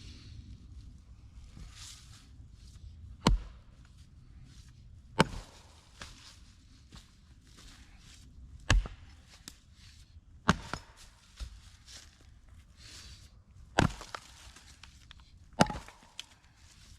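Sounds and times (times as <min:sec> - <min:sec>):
axe splitting wood: 0:03.2 - 0:03.6, 0:05.2 - 0:06.1, 0:08.6 - 0:09.2, 0:10.5 - 0:11.6, 0:13.7 - 0:14.9, 0:15.5 - 0:16.5.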